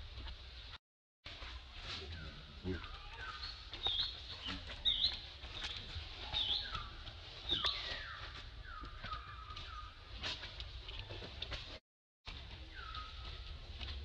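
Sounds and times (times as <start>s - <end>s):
birds chirping: 2.0s - 11.2s, 12.6s - 14.0s.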